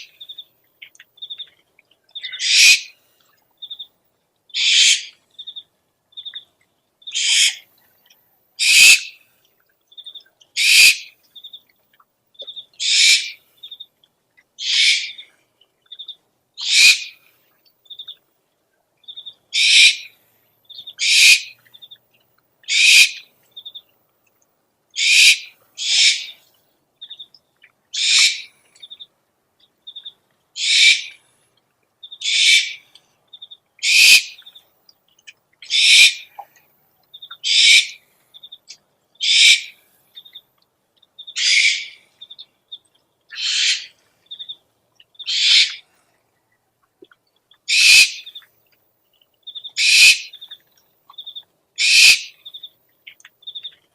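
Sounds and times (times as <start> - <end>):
owl screeching: 2.3 - 2.9, 4.6 - 5.1, 7.2 - 7.6, 8.6 - 9.1, 10.6 - 11.1, 12.8 - 13.4, 14.6 - 15.2, 16.6 - 17.2, 19.6 - 20.1, 21.0 - 21.5, 22.7 - 23.2, 25.0 - 26.4, 28.0 - 28.5, 30.6 - 31.2, 32.2 - 32.8, 33.8 - 34.4, 35.7 - 36.3, 37.4 - 38.0, 39.2 - 39.7, 41.4 - 42.0, 43.3 - 44.0, 45.3 - 45.8, 47.7 - 48.3, 49.8 - 50.3, 51.8 - 52.4.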